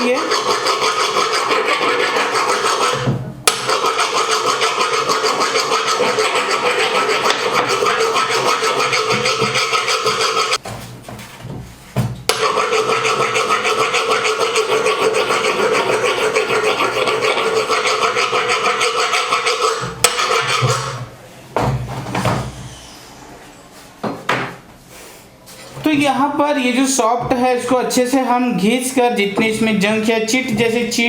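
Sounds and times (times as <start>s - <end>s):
scraping on metal shaft: 0.0s - 10.6s, 12.3s - 21.1s.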